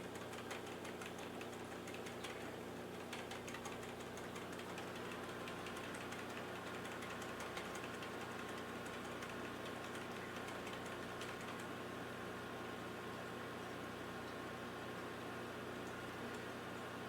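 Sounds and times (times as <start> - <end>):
faint clicks and ticks: 0.0 - 11.8
computer fan hum: 0.0 - 17.0.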